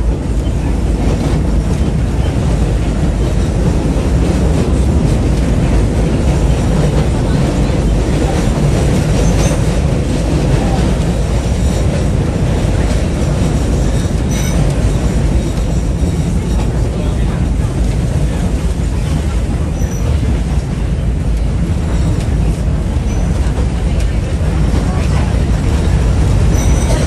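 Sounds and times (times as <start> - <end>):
train wheels rumbling on rails: 0.0 - 27.0
high wheel squeal: 26.5 - 27.0.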